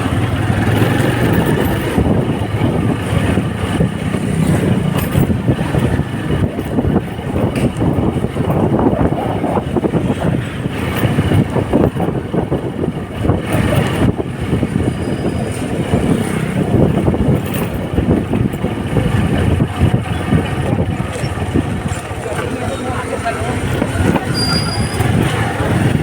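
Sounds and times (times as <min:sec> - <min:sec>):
motorcycle engine running: 0:00.0 - 0:26.0
rushing wind noise: 0:00.0 - 0:26.0.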